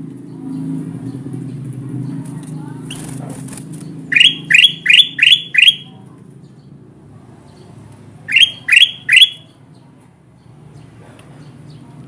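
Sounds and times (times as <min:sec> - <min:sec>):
bulbul calling rising notes: 0:04.1 - 0:05.9, 0:08.3 - 0:09.4.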